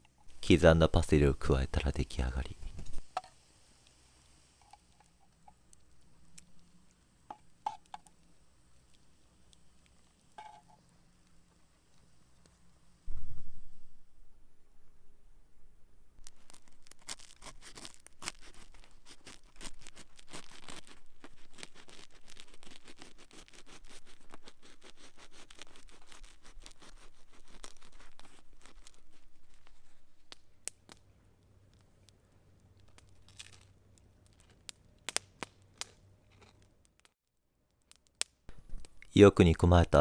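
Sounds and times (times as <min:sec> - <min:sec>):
campfire crackling: 0:00.3 - 0:03.1, 0:38.5 - 0:40.0.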